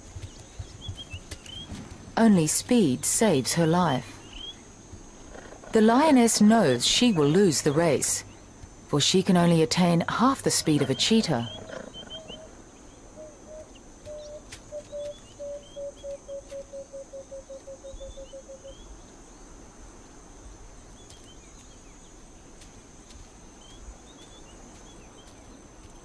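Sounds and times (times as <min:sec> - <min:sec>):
insect hiss: 0:00.0 - 0:26.0
faint chirps: 0:03.9 - 0:05.8, 0:10.4 - 0:19.1
bird cooing: 0:10.6 - 0:12.6, 0:13.2 - 0:18.9.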